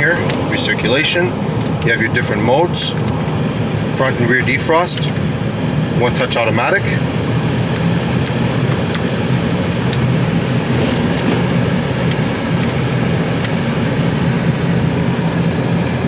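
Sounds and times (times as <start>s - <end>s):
car engine idling: 7.0s - 16.0s
climate control blower: 8.5s - 16.0s.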